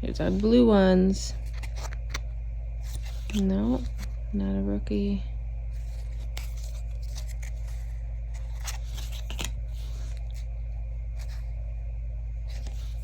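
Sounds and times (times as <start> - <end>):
steady low hum: 0.0 - 13.0
cards rustling and clicking: 1.3 - 4.1, 5.8 - 10.5, 11.1 - 11.5, 12.4 - 13.0.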